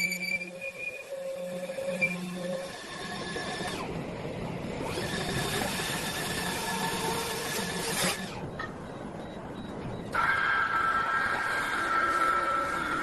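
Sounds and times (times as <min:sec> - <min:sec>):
lathe machine whine: 0:10.1 - 0:13.0.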